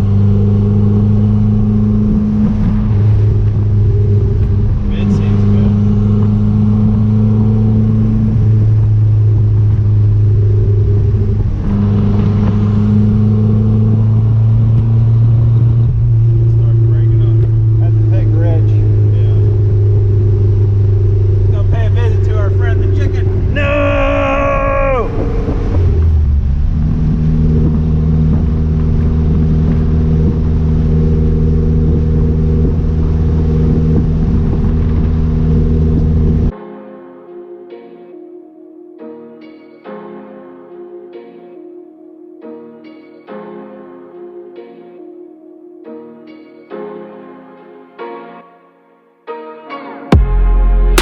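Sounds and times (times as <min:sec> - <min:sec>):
car engine drone while driving: 0:00.0 - 0:36.5.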